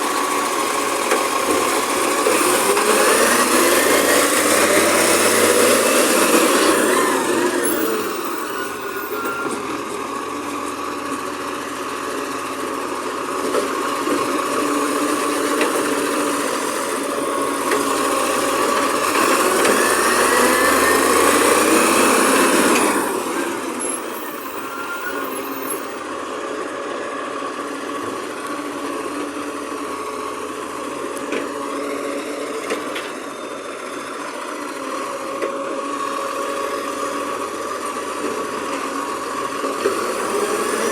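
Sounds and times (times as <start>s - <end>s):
garbage truck engine revving: 0.4s - 9.3s, 13.7s - 26.0s, 39.7s - 40.9s.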